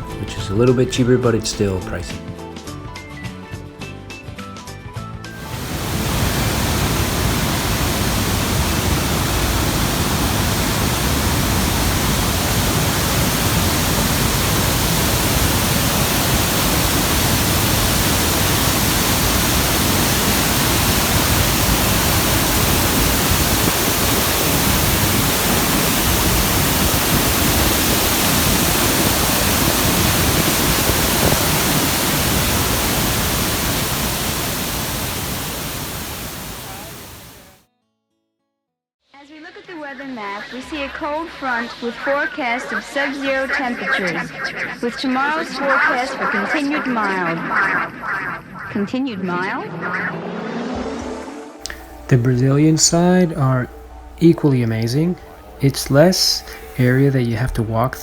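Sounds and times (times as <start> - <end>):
waterfall roar: 5.4 - 37.6.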